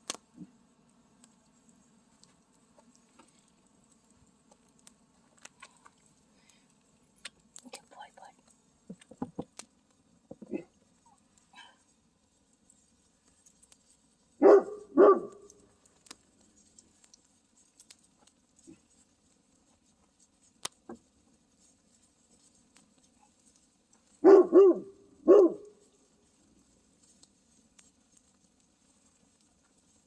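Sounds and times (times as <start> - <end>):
dog barking: 14.4 - 15.6, 24.2 - 25.8.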